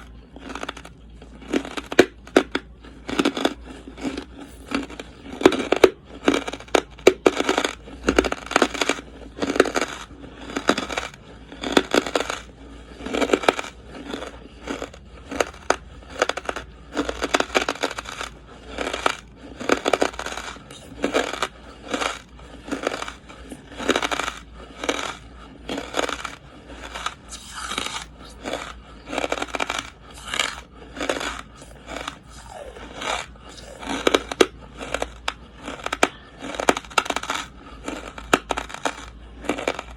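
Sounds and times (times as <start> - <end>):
person chewing charcoal: 0.0 - 39.9.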